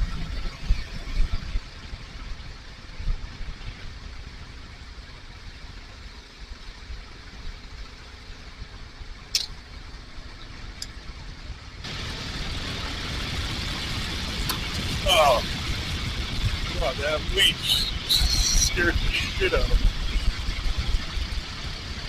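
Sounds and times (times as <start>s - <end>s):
motorcycle engine running at low revs: 0.0s - 16.8s, 19.7s - 22.0s
wind noise: 11.9s - 22.0s.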